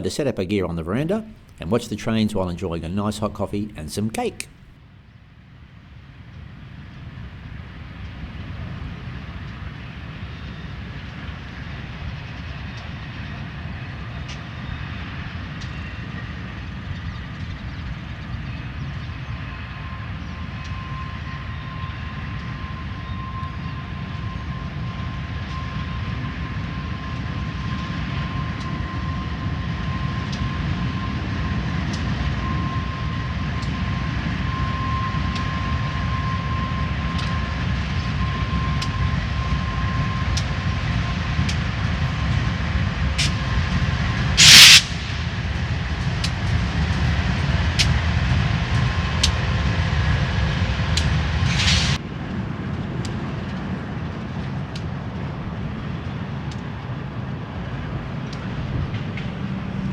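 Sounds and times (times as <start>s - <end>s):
train passing rumble: 0.0s - 59.9s
train wheels clicking: 41.3s - 49.9s
short loud hisses: 44.4s - 45.2s.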